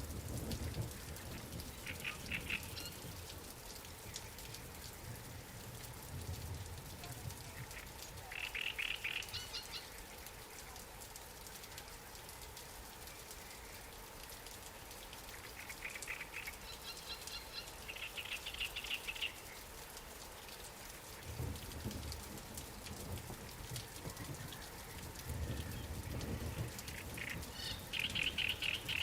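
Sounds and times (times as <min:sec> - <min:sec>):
light rain falling on water: 0:00.0 - 0:29.0.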